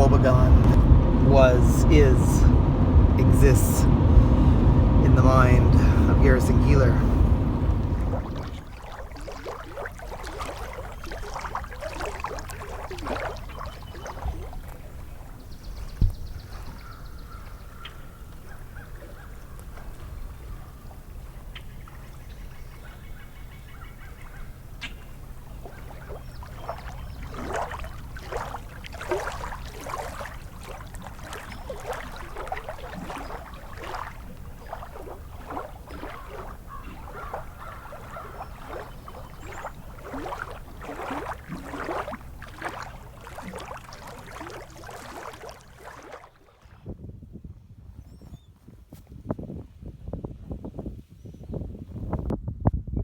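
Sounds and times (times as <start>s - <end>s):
steady low rumble: 0.0s - 15.8s, 24.5s - 46.2s
waterbirds calling: 0.0s - 46.8s.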